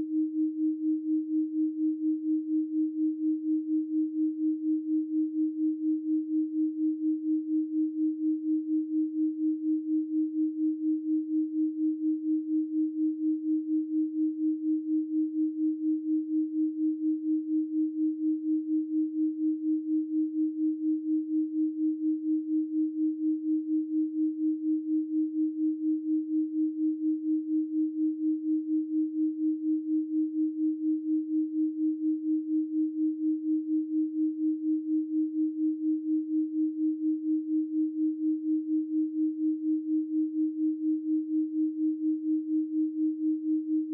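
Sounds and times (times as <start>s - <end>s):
pulsing sine tone: 0.0s - 43.9s.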